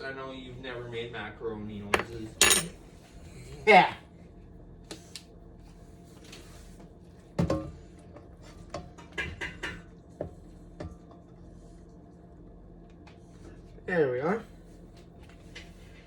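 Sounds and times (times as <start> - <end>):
utensils clinking and tapping: 2.0 - 2.8.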